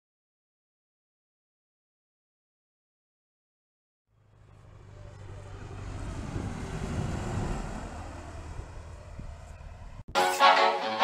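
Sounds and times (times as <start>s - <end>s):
propeller airplane engine droning: 4.1s - 10.1s
wind noise: 5.7s - 10.2s.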